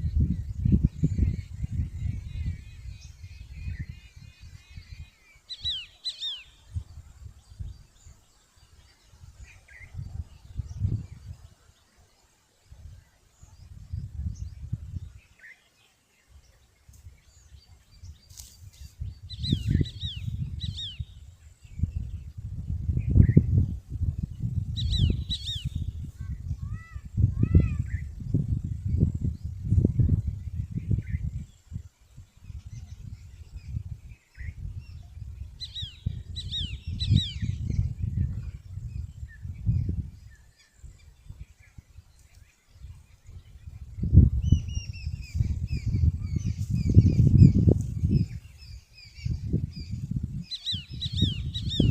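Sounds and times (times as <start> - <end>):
small birds chirping: 0.0 - 51.9
small bird chirping: 32.5 - 51.9.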